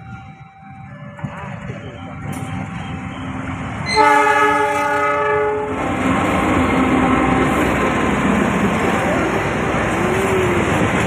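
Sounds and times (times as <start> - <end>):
train passing rumble: 0.0 - 11.0
train horn: 3.8 - 5.8.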